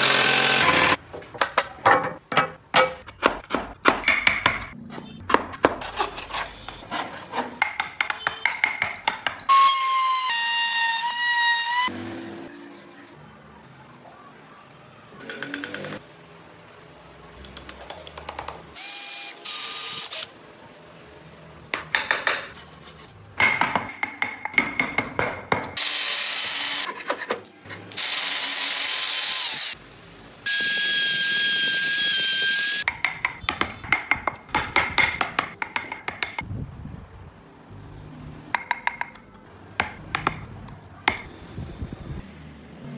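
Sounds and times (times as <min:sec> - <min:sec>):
power drill whining: 0:00.0 - 0:01.0.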